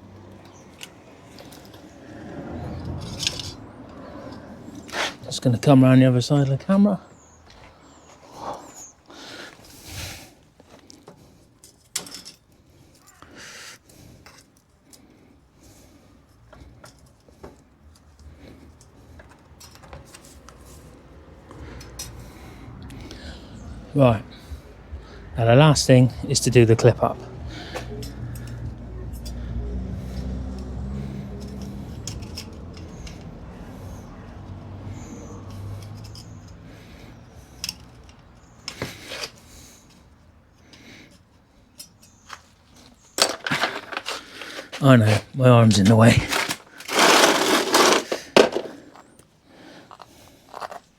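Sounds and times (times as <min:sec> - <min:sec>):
faint clicks and handling noises: 0:00.2 - 0:02.0, 0:10.4 - 0:23.7, 0:27.1 - 0:44.8, 0:46.3 - 0:50.9.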